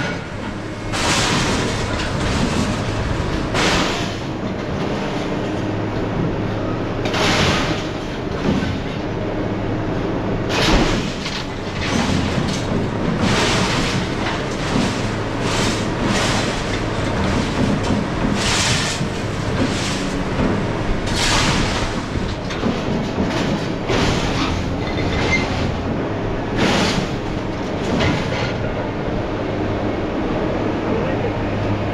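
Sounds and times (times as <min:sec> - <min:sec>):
scrap metal crashing and clanking: 0:00.0 - 0:05.7, 0:07.0 - 0:09.0, 0:10.5 - 0:28.7
heavy machine engine drone: 0:00.0 - 0:31.9.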